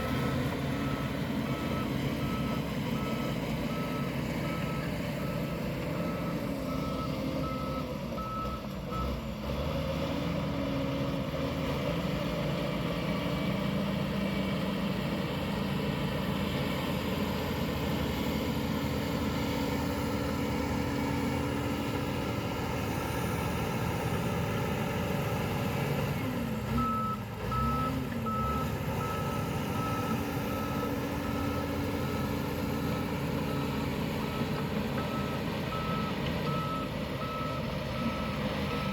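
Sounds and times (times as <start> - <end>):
diesel engine running: 0.0 - 38.9
reversing alarm beeps: 0.8 - 9.2, 26.8 - 33.7, 34.3 - 38.9.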